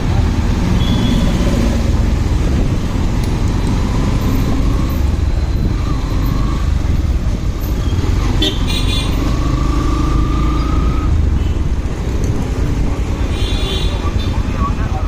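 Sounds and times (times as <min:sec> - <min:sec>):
motorcycle engine riding: 0:00.0 - 0:14.1
tyre road noise: 0:00.0 - 0:15.0
wind rumbling on microphone: 0:01.8 - 0:08.2.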